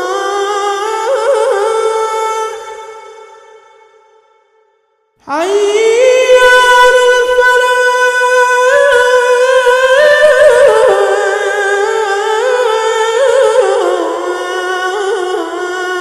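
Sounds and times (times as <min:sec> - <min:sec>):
man chanting call to prayer: 0:05.3 - 0:16.0.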